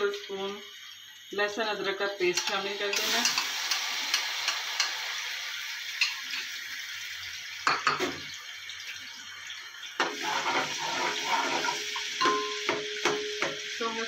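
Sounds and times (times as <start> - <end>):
paste sizzling in hot oil: 0.0 - 14.0
spoon scraping pot: 10.0 - 12.1.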